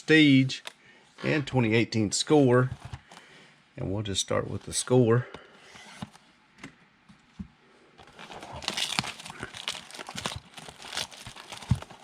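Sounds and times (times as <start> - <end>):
wrapper crinkling and tearing: 8.0 - 12.0.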